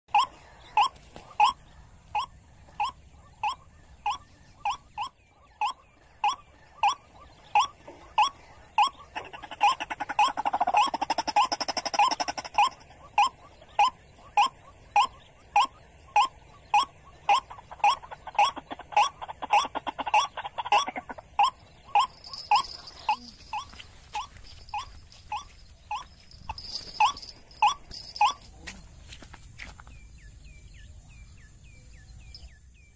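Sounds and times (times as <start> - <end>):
water bird calling: 0.2 - 28.4.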